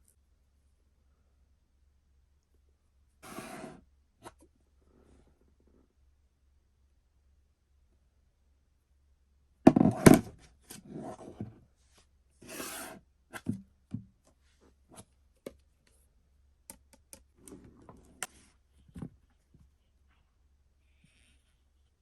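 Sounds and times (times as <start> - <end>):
objects rustling and scraping: 3.2 - 4.4, 9.7 - 13.6.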